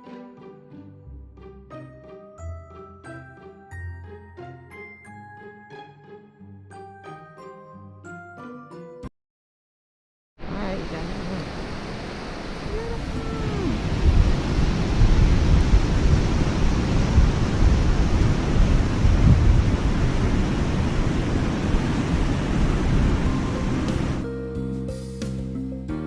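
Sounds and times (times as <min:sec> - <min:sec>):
waterfall rushing water: 0:10.4 - 0:24.2.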